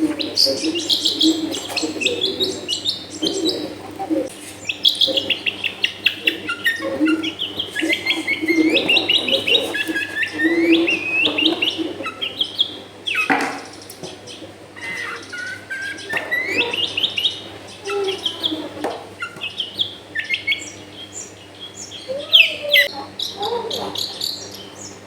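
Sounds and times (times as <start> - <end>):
bird singing chattering notes: 0.0 - 25.0.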